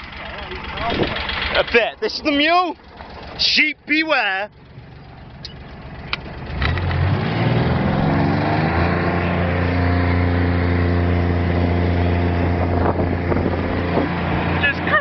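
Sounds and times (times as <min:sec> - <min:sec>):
utility vehicle engine under load: 0:00.0 - 0:15.0.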